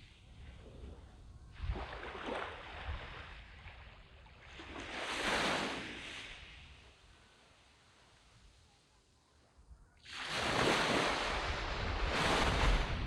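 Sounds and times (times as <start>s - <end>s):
sea waves breaking on sand: 1.6s - 7.0s, 10.0s - 13.0s.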